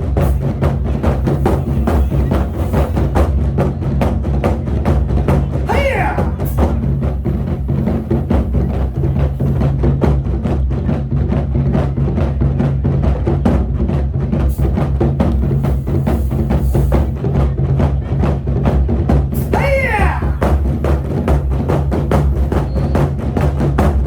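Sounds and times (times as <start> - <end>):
drums played in fast strokes: 0.0 - 24.0
wavering cry: 5.6 - 6.4, 19.4 - 20.6.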